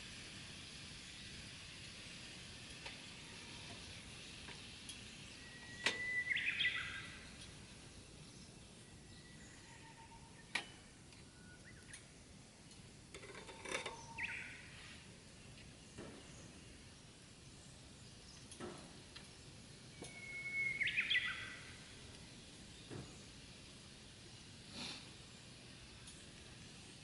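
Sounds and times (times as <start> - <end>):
faint steady hiss: 0.0 - 27.0
bird calling: 5.4 - 7.2, 20.0 - 21.7.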